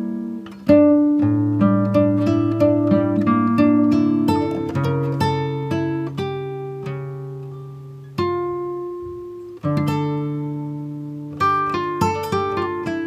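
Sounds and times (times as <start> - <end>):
acoustic guitar picking: 0.0 - 13.0.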